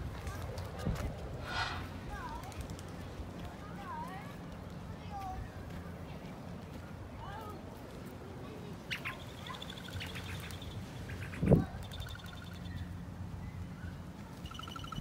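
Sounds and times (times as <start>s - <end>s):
birds pulsed whistles: 1.4s - 2.0s, 11.5s - 15.0s.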